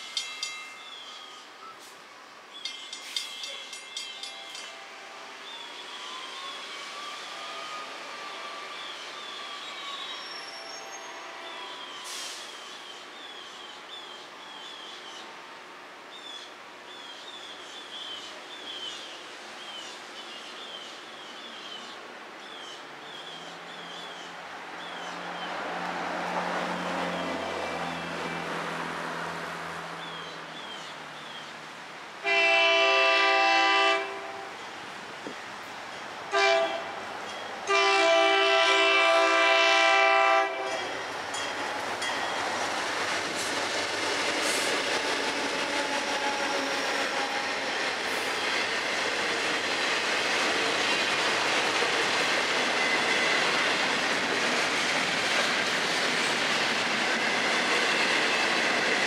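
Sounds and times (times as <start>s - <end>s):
train wheels clattering on rails: 2.6s - 4.8s, 40.7s - 59.0s
locomotive horn blasts: 32.2s - 34.6s, 36.3s - 37.0s, 37.7s - 41.0s.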